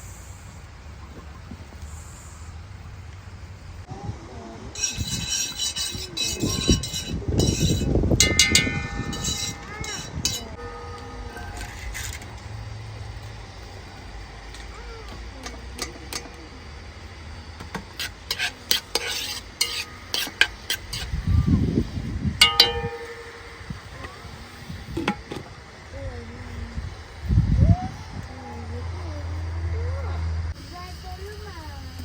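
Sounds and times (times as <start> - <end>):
utensil stirring in metal pot: 4.8 - 12.9, 17.6 - 24.0
ringing knock on pot: 6.3 - 12.4, 22.4 - 24.3.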